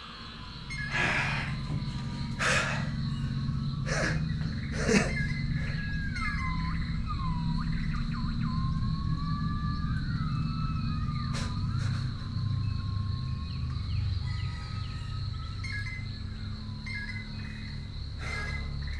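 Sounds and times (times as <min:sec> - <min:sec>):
steady low drone: 0:00.0 - 0:18.9
sliding whistle-like tones: 0:05.3 - 0:12.8.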